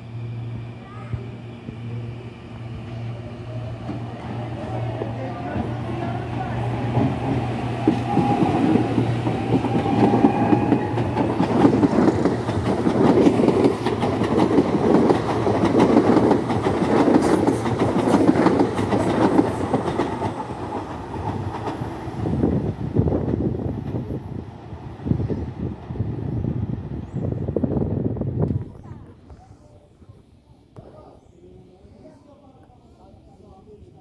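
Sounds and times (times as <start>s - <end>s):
train wheels clattering over joints: 6.9s - 22.0s.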